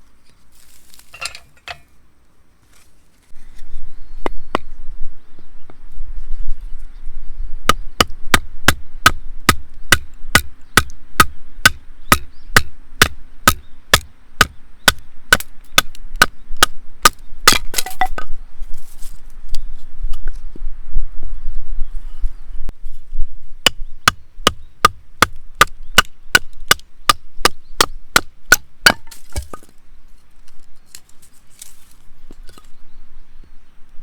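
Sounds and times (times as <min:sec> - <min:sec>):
wood being chopped: 0:07.7 - 0:18.3, 0:23.7 - 0:29.7.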